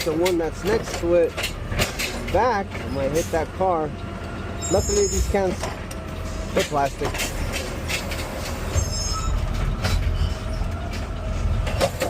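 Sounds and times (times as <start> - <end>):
truck engine and hydraulics: 0.0 - 12.0
high-pitched squeal: 4.6 - 5.5, 8.5 - 11.4.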